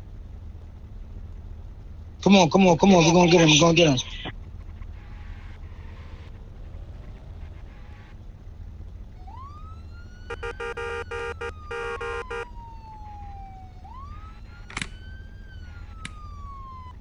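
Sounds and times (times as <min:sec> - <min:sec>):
engine and road rumble: 0:00.0 - 0:17.0
police siren wailing: 0:03.0 - 0:17.0
rapid horn blasts: 0:10.3 - 0:12.5.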